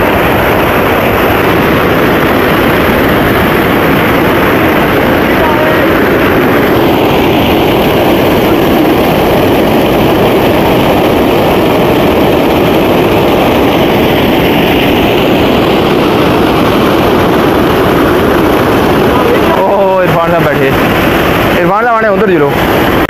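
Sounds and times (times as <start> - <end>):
water rushing over a weir: 0.0 - 23.0.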